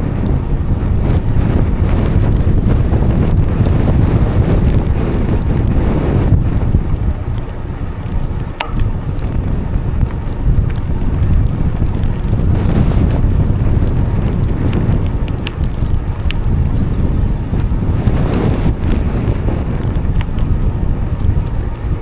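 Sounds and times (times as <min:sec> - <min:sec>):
faint ticks: 0:00.0 - 0:22.0
wind buffeting microphone: 0:00.0 - 0:22.0
sharp click: 0:08.5 - 0:09.8.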